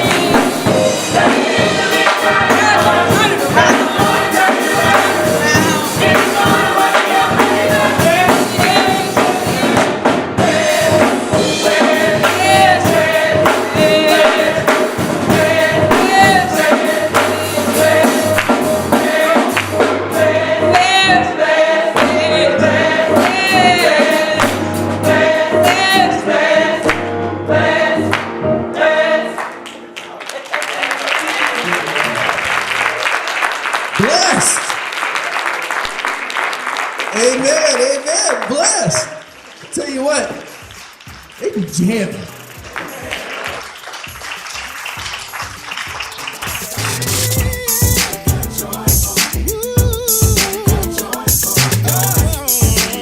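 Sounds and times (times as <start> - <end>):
percussion beat: 0.0 - 21.1, 21.9 - 26.2, 37.2 - 53.0
choir singing with band: 0.0 - 29.7, 46.8 - 53.0.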